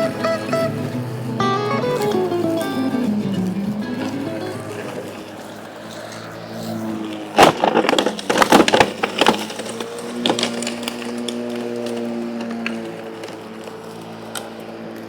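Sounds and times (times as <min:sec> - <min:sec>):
electric push mower humming: 0:00.0 - 0:08.4, 0:09.4 - 0:15.0
sticks cracking and splintering: 0:07.0 - 0:15.0.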